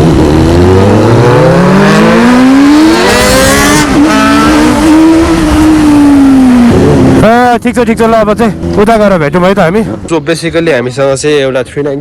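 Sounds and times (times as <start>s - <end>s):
motorcycle engine accelerating: 0.0s - 10.1s.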